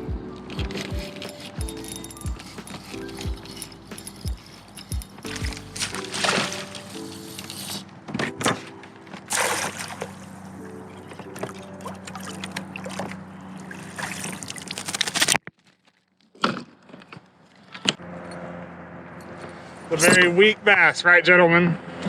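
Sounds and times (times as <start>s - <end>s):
water sloshing around kayak: 0.0s - 15.9s.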